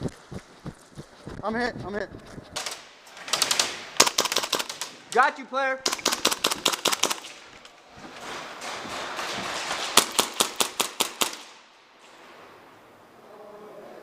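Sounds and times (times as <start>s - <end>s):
airsoft gun shots: 5.9s - 7.4s, 9.1s - 11.6s.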